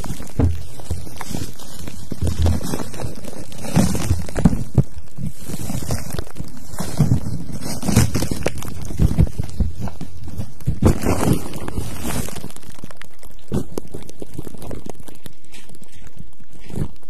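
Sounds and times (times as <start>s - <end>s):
scratchy rubbing on microphone: 0.0s - 12.6s.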